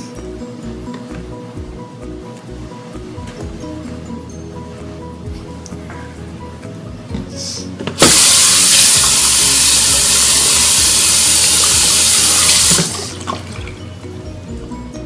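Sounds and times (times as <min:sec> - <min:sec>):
running water rushing: 0:08.0 - 0:13.9.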